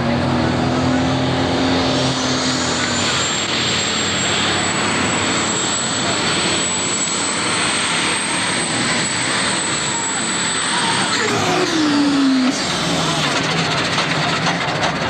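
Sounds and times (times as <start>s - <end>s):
diesel engine running hard: 0.0s - 15.0s
turbocharger whistle: 2.0s - 13.8s.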